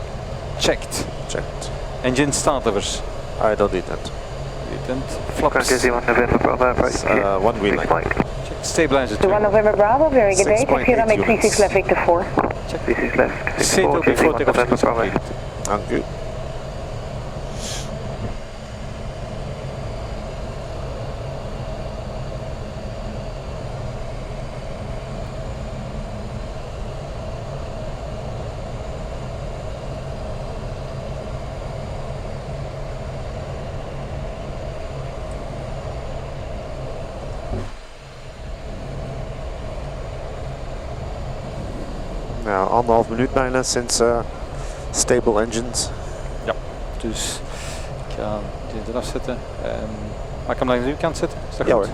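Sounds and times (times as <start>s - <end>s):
air-conditioning hiss: 0.0s - 19.9s, 32.6s - 51.9s
aircraft engines idling hum: 0.0s - 51.9s.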